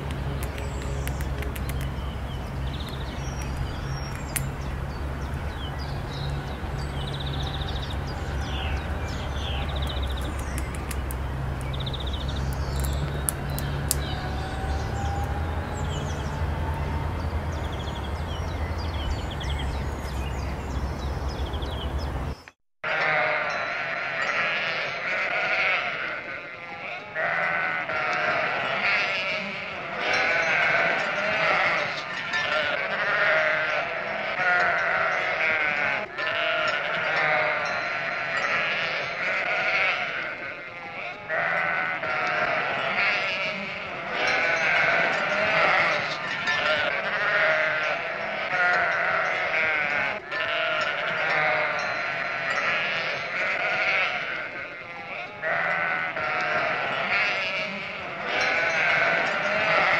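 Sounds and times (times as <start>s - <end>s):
sheep bleating: 22.8s - 59.9s.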